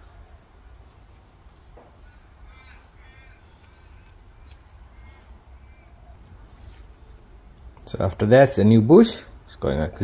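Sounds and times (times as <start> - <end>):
low steady hum: 0.0 - 10.0
crow cawing faintly: 1.8 - 6.2.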